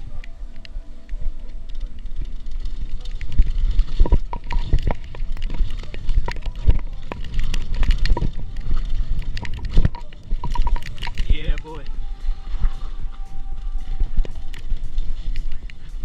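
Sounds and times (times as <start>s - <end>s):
wind rumble on microphone: 0.0s - 16.0s
mountain bike clattering: 1.1s - 12.0s.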